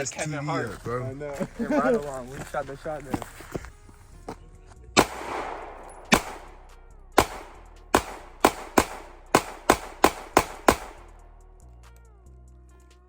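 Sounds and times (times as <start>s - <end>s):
gunshots: 5.0s - 11.3s.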